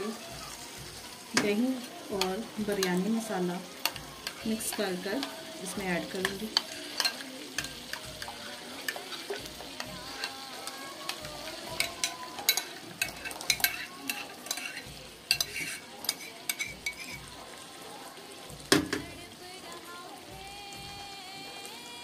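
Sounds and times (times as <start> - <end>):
food sizzling in a pan: 0.0 - 22.0
fork scraping glass bowl: 11.8 - 17.2.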